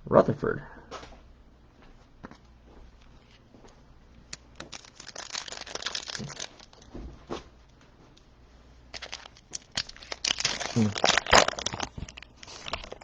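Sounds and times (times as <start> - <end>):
wrapper tearing and crinkling: 4.3 - 6.9, 8.9 - 13.0.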